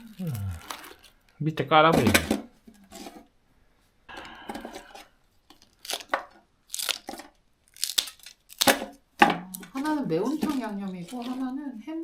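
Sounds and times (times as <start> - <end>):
plastic packet tearing: 0.0 - 1.3, 5.5 - 11.5
plastic packets crinkling: 0.0 - 1.4, 4.7 - 11.7.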